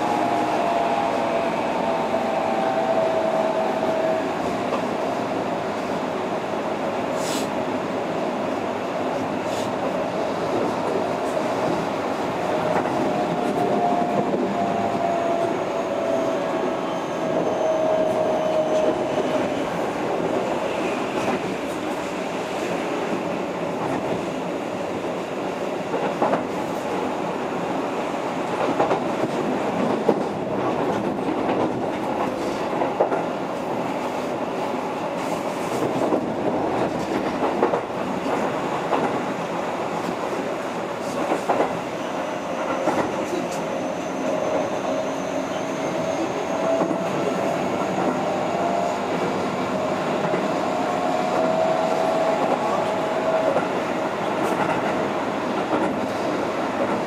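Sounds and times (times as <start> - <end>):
train wheels rumbling on rail: 0.0 - 57.0
rail joint clacks: 35.2 - 39.4, 42.6 - 57.0.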